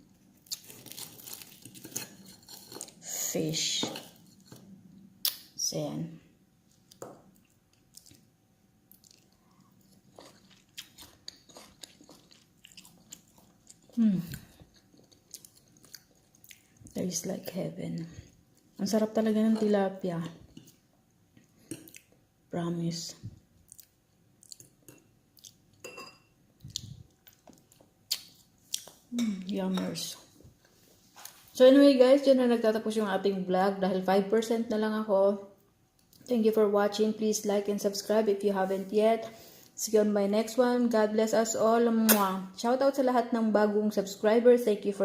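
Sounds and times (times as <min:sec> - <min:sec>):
chewing and crunching fried fish: 0:00.3 - 0:03.0, 0:06.7 - 0:08.3, 0:08.9 - 0:17.0, 0:23.6 - 0:25.8, 0:26.6 - 0:29.0.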